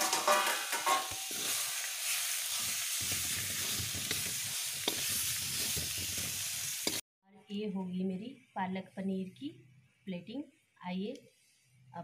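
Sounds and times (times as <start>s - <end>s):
metal ladle stirring: 0.0s - 6.3s
food sizzling in a pan: 0.0s - 7.0s.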